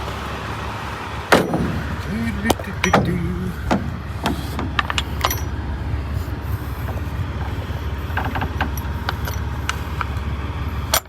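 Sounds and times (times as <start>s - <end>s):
diesel truck engine idling: 0.0s - 11.0s
metallic clicks and clinks: 4.8s - 5.6s, 8.1s - 10.2s.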